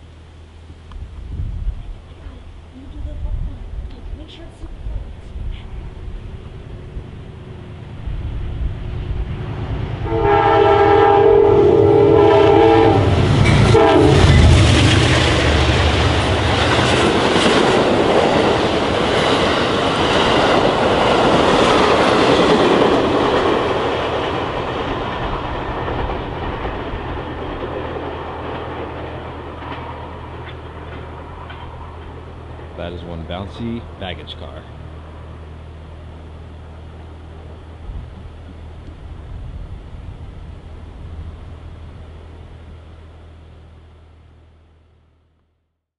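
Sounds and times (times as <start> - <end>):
train cars rushing and clattering: 5.8 - 43.4
locomotive horn chord: 10.0 - 14.8.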